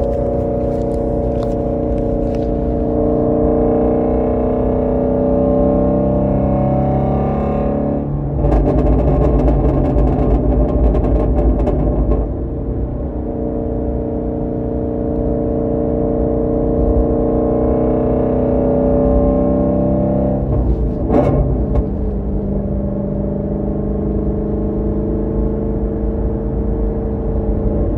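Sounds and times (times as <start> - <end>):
exhaust crackling and popping: 0.0 - 3.4, 7.4 - 13.4, 20.2 - 23.2
car engine droning: 0.0 - 27.9.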